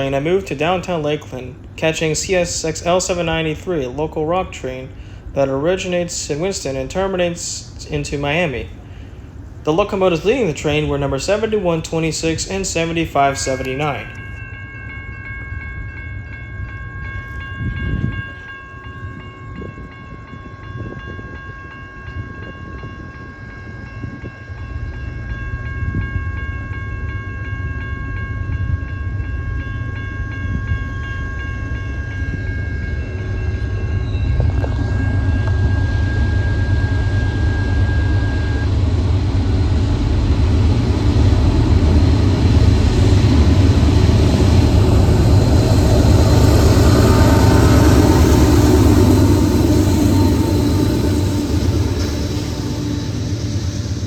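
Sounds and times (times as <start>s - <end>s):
diesel locomotive rumble: 0.0s - 14.5s, 27.6s - 54.0s
high ringing: 0.0s - 54.0s.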